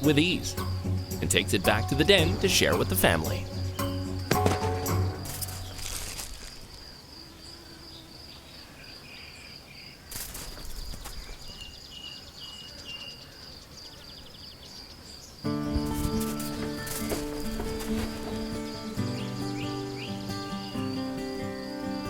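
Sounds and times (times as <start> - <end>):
high chirps: 0.0 - 6.0
high-pitched insect trill: 0.0 - 9.2, 15.4 - 22.0.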